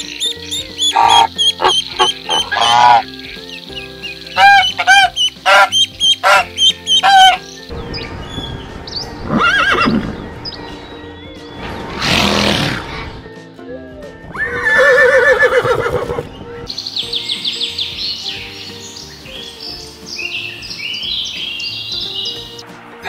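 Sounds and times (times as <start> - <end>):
background music: 0.0 - 23.0
pony whinnying: 0.8 - 3.1, 4.4 - 7.4, 9.3 - 10.0, 14.3 - 16.3.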